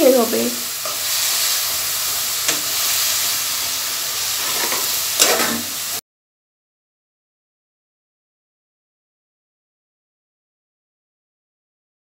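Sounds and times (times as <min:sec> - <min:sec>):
vermicelli sizzling in a pan: 0:00.0 - 0:06.0.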